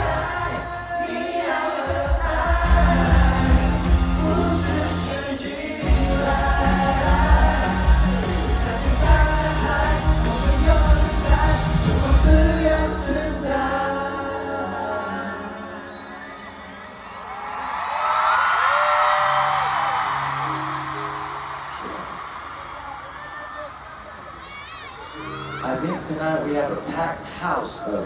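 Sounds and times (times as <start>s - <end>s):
live pop ballad over loudspeakers: 0.0s - 17.4s.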